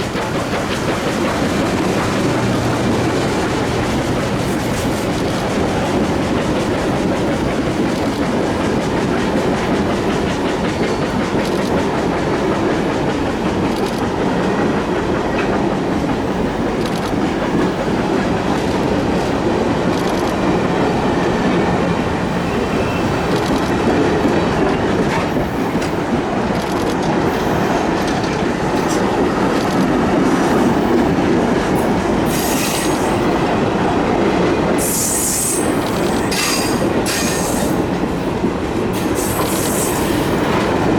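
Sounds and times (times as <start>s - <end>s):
wheels clicking over rail joints: 0.0s - 21.9s, 23.3s - 40.9s
train cars rumbling past: 0.0s - 40.9s.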